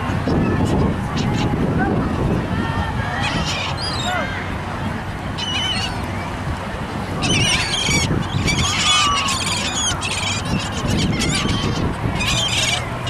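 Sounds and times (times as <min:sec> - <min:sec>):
seagulls squawking: 0:00.3 - 0:01.6, 0:02.6 - 0:13.0.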